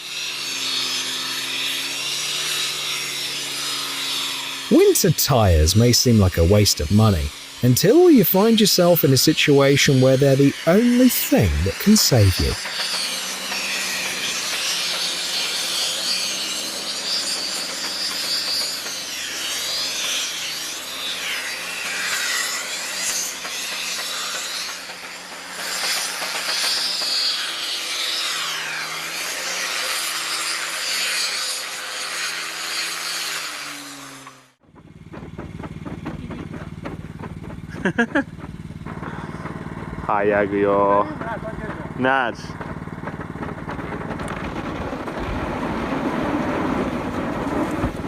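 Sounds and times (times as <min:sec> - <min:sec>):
vehicle running with loud hiss: 0:04.7 - 0:12.6
faint engine tones: 0:34.8 - 0:45.8.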